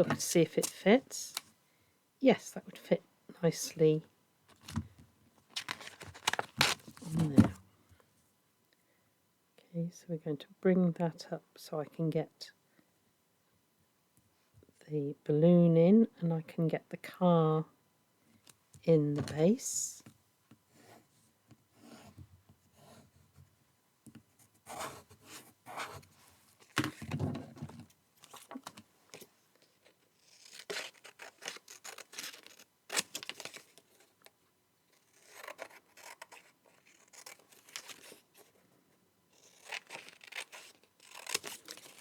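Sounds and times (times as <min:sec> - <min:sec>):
paper and card rustling: 0:05.5 - 0:07.6, 0:28.2 - 0:34.1.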